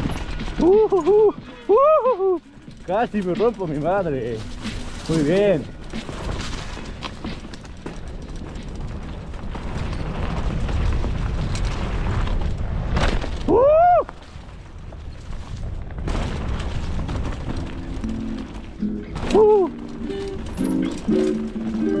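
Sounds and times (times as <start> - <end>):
bike tyres rumbling and rattling: 0.0 - 22.0
scattered clicks: 19.8 - 22.0.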